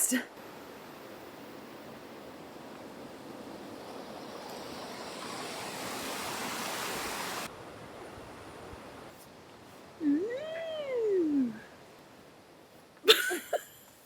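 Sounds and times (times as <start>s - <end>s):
rushing river water: 0.3s - 9.1s.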